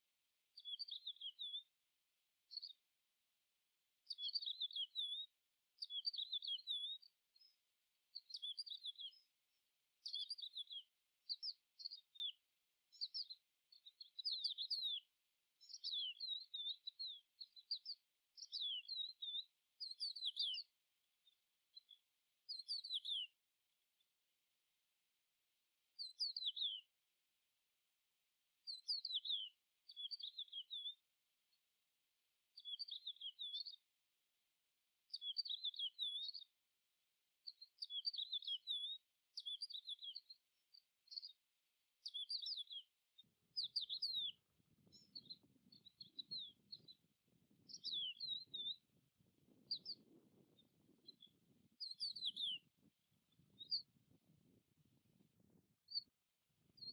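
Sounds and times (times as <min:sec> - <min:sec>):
songbird chirping: 0:00.0 - 0:01.8, 0:02.5 - 0:02.9, 0:04.0 - 0:23.4, 0:25.9 - 0:27.0, 0:28.6 - 0:31.1, 0:32.6 - 0:33.9, 0:35.1 - 0:36.6, 0:37.4 - 0:54.6.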